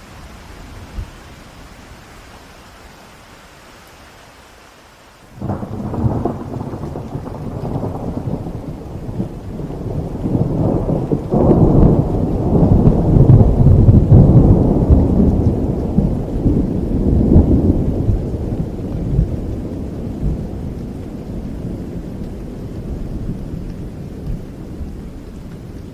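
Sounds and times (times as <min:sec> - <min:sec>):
rain hissing: 0:00.0 - 0:25.9
rolling thunder: 0:05.4 - 0:25.8.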